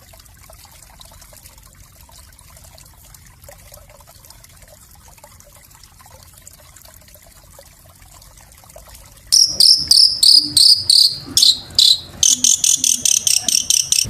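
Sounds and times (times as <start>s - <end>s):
songbird singing high notes: 9.4s - 14.0s.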